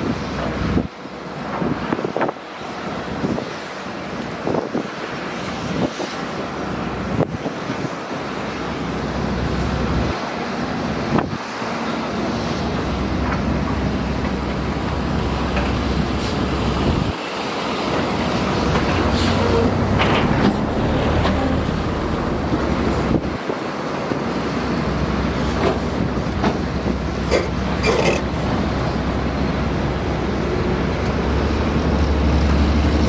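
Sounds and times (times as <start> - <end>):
diesel engine low rumble: 0.0 - 33.0.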